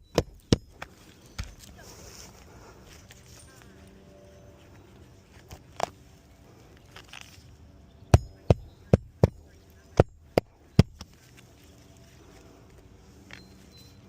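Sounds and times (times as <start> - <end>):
hammer driving nails into shingle: 0.0 - 0.8, 8.1 - 9.4, 10.0 - 11.1.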